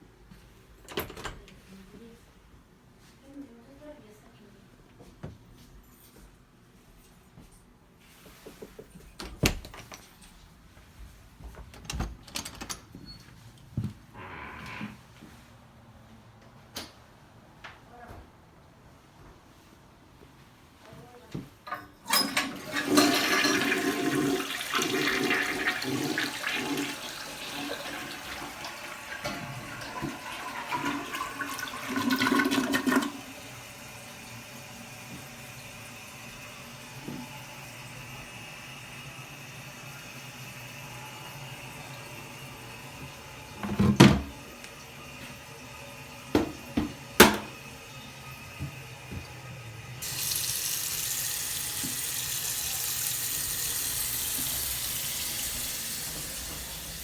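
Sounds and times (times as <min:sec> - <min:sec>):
toilet flushing: 0:22.0 - 0:57.0
toilet tank refilling hiss: 0:22.2 - 0:49.0, 0:49.6 - 0:57.0.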